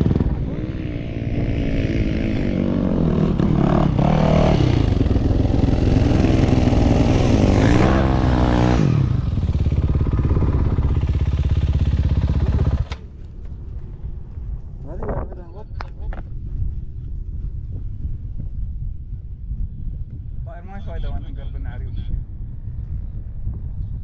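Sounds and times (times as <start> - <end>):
dirt bike engine revving: 0.0 - 13.1.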